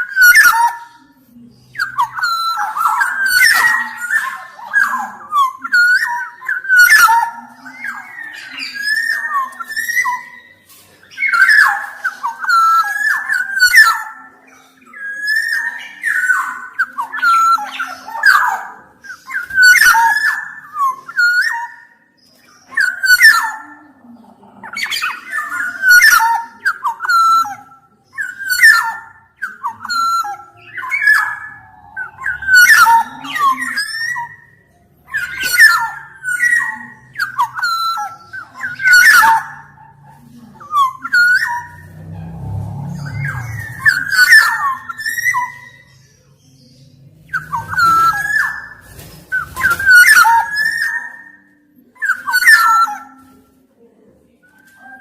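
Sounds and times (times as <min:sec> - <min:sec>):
bird singing fluted whistles: 0:43.0 - 0:46.0, 0:47.3 - 0:53.1.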